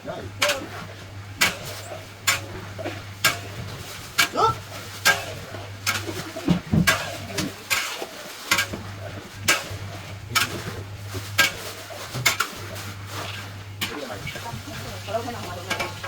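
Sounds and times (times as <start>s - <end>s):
steady low hum: 0.0s - 16.0s
food frying in oil: 0.3s - 16.0s.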